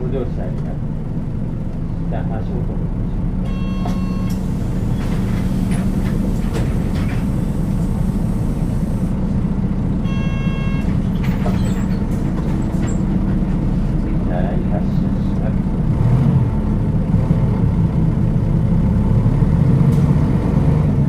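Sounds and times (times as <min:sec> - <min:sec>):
bus engine drone: 0:00.0 - 0:21.0
road noise: 0:00.0 - 0:21.0
short electronic tone: 0:03.5 - 0:04.4, 0:10.1 - 0:11.0.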